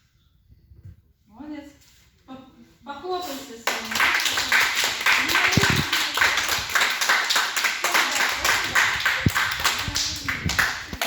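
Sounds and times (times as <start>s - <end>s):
children clapping hands: 3.6s - 11.0s.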